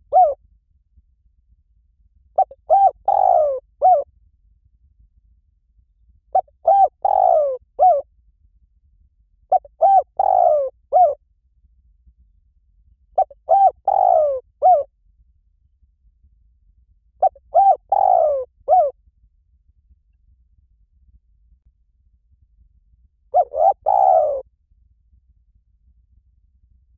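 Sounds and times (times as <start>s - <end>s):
dove cooing: 0.0s - 0.4s, 2.4s - 4.0s, 6.4s - 8.0s, 9.5s - 11.2s, 13.2s - 14.9s, 17.2s - 18.9s, 23.3s - 24.4s.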